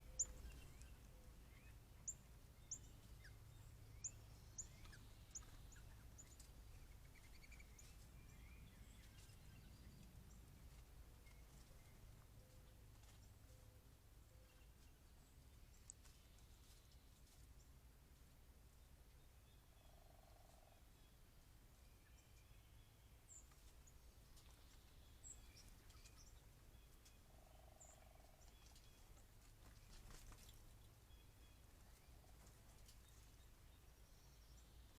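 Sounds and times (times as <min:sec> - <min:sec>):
small birds chip notes: 0:00.0 - 0:03.4, 0:04.0 - 0:13.7
faint lower bird chirps: 0:00.0 - 0:10.4.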